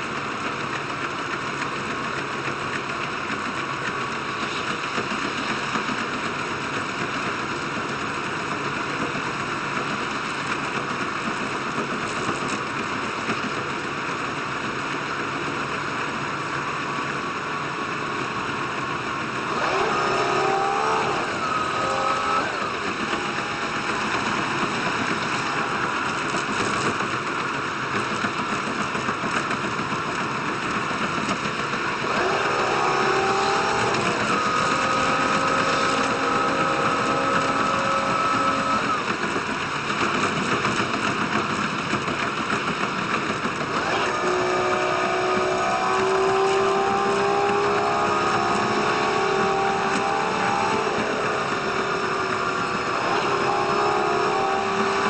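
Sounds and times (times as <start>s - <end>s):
train running rumble: 0.0s - 55.0s.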